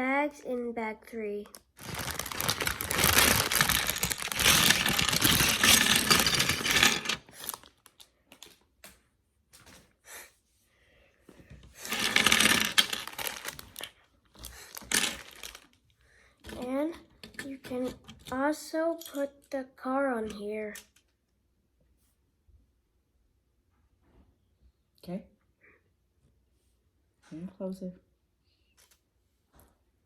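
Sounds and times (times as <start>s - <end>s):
small plastic pieces clattering: 1.5s - 8.6s, 11.8s - 15.8s
plastic bags rustling: 1.8s - 8.6s, 11.8s - 15.7s.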